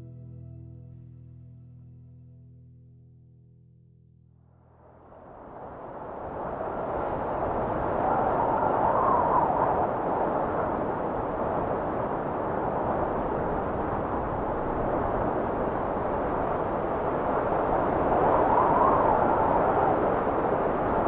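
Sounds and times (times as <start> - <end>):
wind blowing: 5.0 - 21.0.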